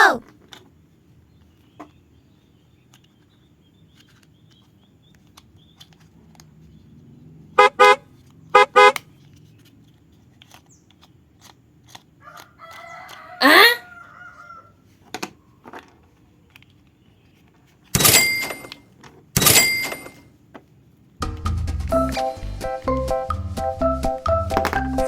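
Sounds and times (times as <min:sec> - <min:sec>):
car horn short beeps: 0:07.6 - 0:08.0, 0:08.6 - 0:09.0.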